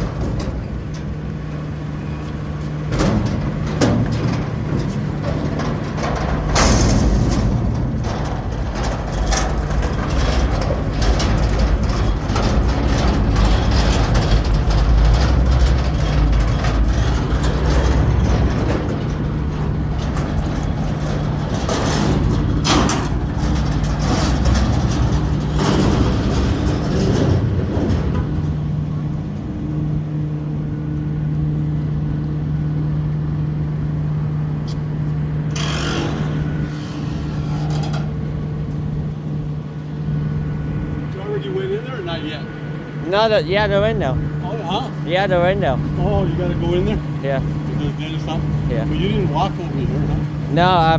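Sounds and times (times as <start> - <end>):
clanks and knocks: 0.0 - 30.2, 33.8 - 41.3
garbage truck engine running: 0.0 - 50.9.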